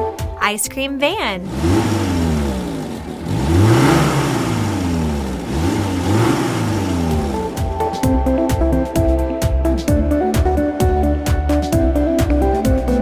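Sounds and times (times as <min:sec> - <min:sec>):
electronic music with a beat: 0:00.0 - 0:01.5, 0:06.2 - 0:13.0
van engine revving: 0:01.3 - 0:13.0.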